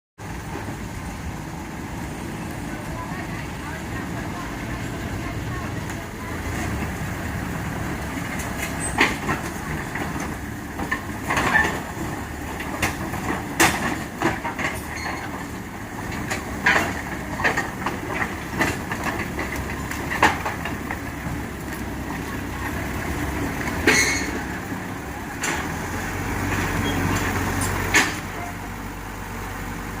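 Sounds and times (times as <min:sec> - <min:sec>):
diesel engine rumble: 0:00.2 - 0:30.0
metallic clanks and knocks: 0:08.4 - 0:15.5, 0:16.1 - 0:21.0, 0:23.8 - 0:24.6.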